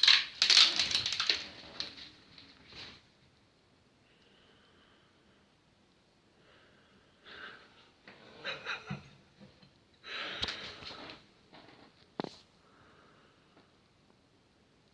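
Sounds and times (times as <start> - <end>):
person laughing stifled: 8.4 - 9.2.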